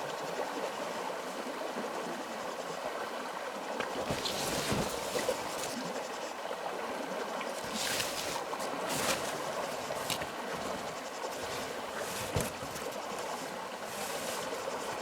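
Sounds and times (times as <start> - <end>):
flowing water rushing: 3.3 - 15.0.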